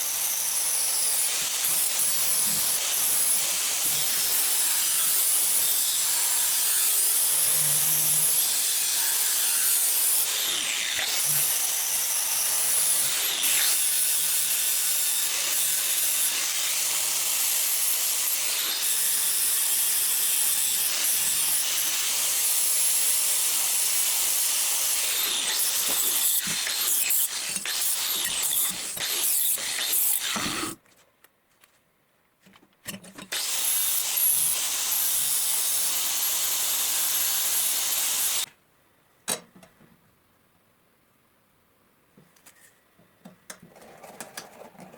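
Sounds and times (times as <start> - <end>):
grinder on steel saw blade: 0.0 - 30.8.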